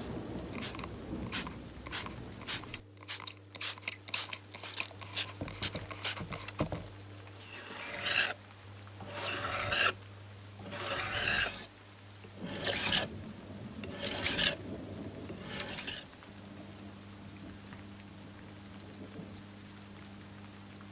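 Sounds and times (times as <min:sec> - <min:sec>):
sandpaper strokes on hard surface: 0:00.0 - 0:06.4, 0:07.4 - 0:08.4, 0:09.0 - 0:10.0, 0:10.6 - 0:11.7, 0:12.4 - 0:13.1, 0:13.8 - 0:14.6, 0:15.3 - 0:16.1.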